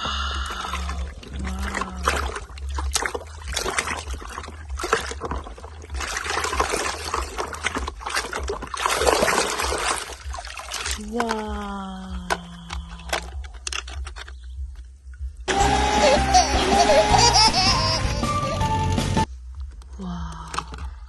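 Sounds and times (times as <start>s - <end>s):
water trickling and splashing: 0.0s - 13.6s.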